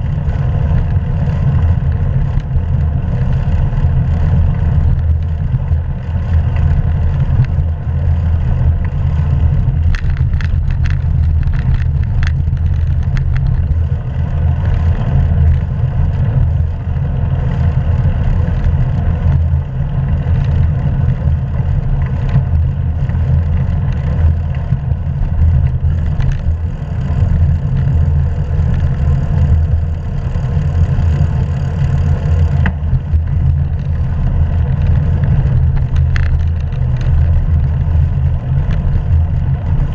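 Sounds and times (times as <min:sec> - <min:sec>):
light rattling clicks: 0:08.6 - 0:13.9, 0:22.0 - 0:39.8.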